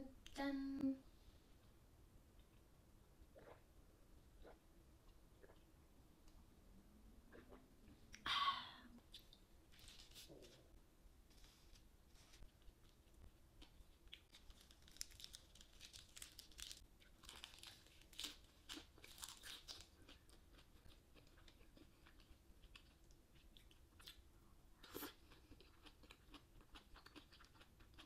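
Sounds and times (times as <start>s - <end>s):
crunching of fresh lettuce: 14.2s - 20.2s.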